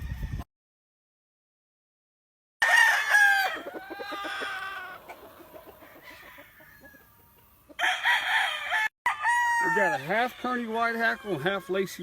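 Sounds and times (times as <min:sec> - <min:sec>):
rooster crowing: 0:02.6 - 0:12.0.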